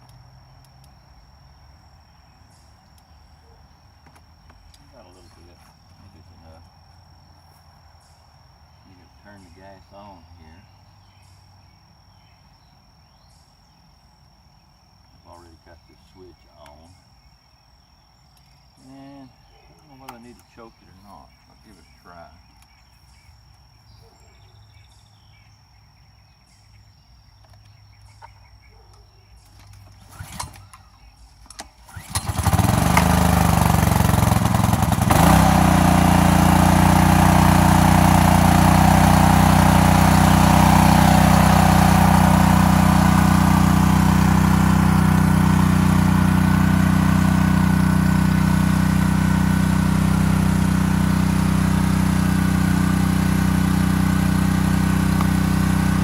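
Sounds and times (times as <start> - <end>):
pull-start clicks and rattle: 29.5 - 56.0
pressure washer engine running: 31.9 - 56.0.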